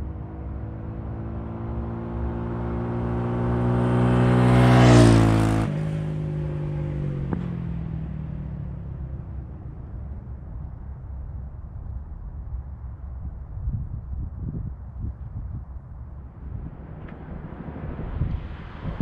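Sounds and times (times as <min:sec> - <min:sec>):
motorcycle engine passing by: 0:01.2 - 0:08.1, 0:16.3 - 0:19.0.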